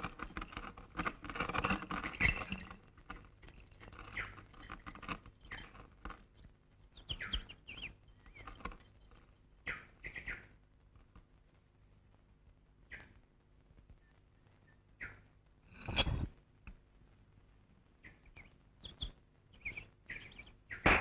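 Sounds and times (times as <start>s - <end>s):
birds chirping: 1.3s - 10.5s, 14.0s - 16.4s, 18.0s - 21.0s.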